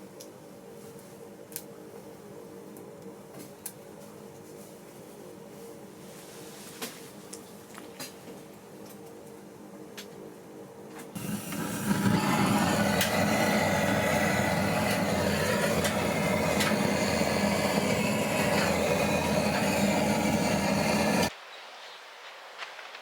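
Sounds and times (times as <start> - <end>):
loud steady rushing noise: 11.2 - 21.3.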